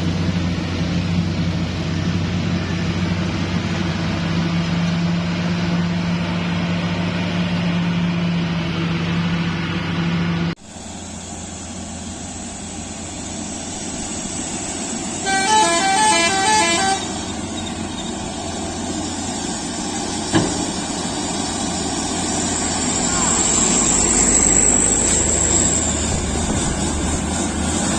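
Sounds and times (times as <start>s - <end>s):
heavy truck engine running: 0.0s - 27.9s
road noise: 0.0s - 27.9s
musical horn playing notes: 15.2s - 17.3s.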